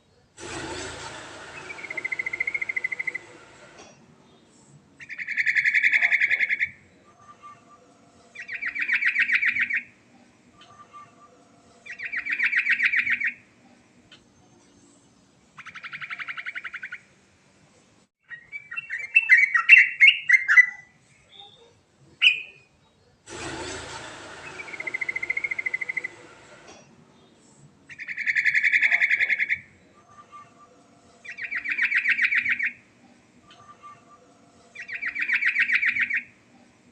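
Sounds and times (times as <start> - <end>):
bird trilling and chirping: 31.2 - 32.8, 34.8 - 36.2.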